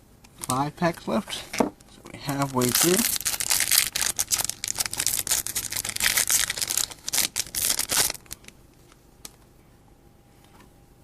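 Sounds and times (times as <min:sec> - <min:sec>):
foil wrapper crinkling and tearing: 0:02.2 - 0:08.6.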